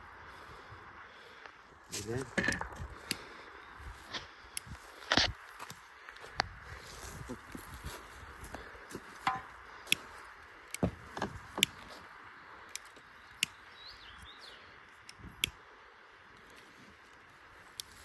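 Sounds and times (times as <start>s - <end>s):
firewood knocks and cracks: 2.3s - 2.8s, 9.2s - 9.6s, 10.8s - 12.0s.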